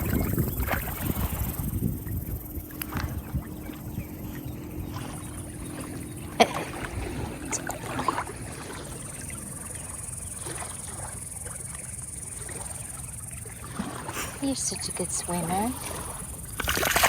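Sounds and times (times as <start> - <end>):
low rumble: 0.0 - 10.4
water splashing and lapping: 0.0 - 17.0.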